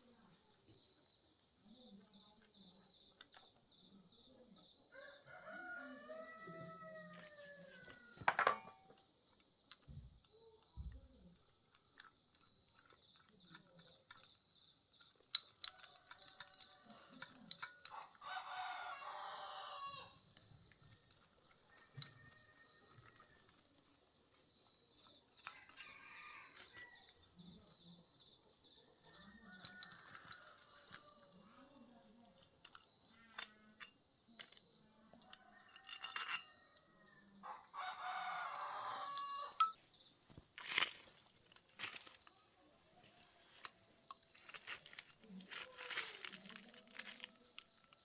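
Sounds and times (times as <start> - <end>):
insects chorus: 0.0 - 48.0
rooster crowing: 4.9 - 8.8, 17.9 - 20.2, 25.5 - 27.1, 29.1 - 31.4, 35.3 - 39.7.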